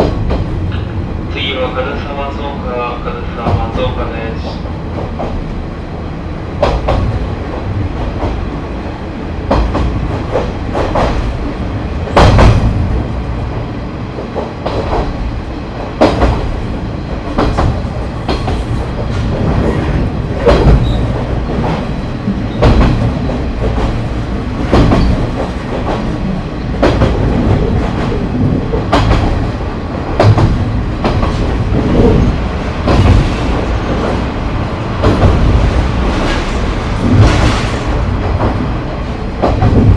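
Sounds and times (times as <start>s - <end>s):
railcar engine and wheels rumbling: 0.0s - 39.9s.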